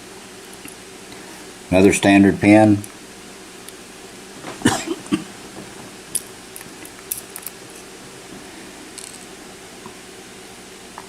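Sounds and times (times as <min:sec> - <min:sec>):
metallic clicks of padlock parts: 0:06.2 - 0:07.6.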